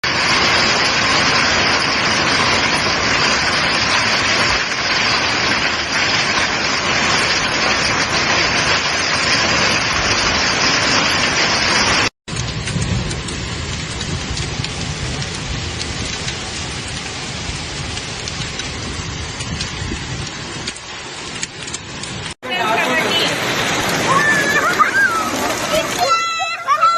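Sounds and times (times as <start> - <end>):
heavy rain pouring: 0.0 - 26.9.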